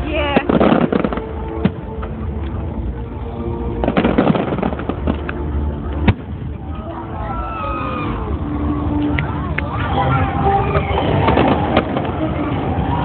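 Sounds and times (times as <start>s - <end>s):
fireworks crackling and popping: 0.0s - 3.0s, 3.7s - 6.8s, 10.7s - 13.0s.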